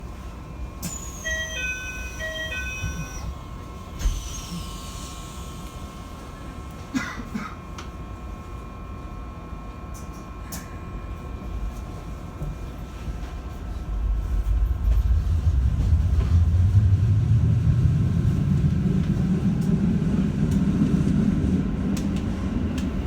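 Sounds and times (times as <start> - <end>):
train doors shutting with thump: 0.8 - 4.9
electronic door chime: 1.2 - 3.3
electrical hum and rumble: 5.5 - 23.0.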